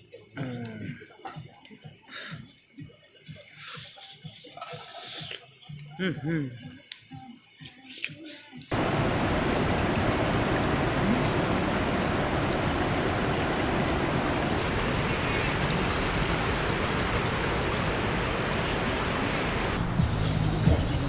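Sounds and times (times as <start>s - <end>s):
river water roaring: 8.7s - 19.8s.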